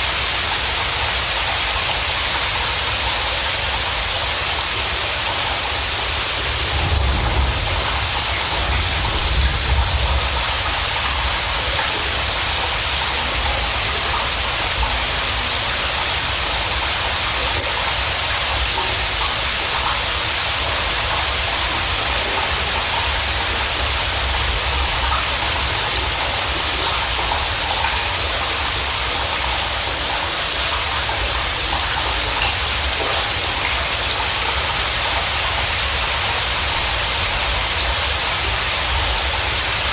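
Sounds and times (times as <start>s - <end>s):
rain falling: 0.0s - 39.9s
low rumble: 6.4s - 11.6s.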